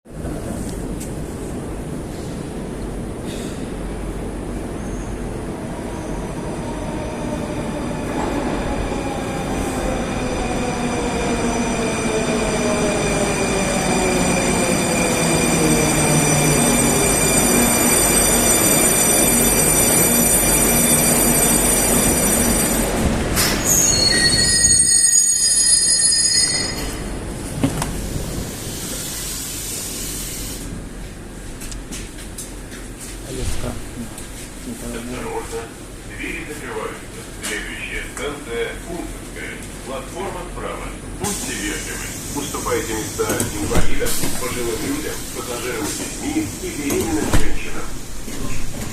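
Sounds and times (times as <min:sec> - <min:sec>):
high brake squeal: 0:23.4 - 0:27.0.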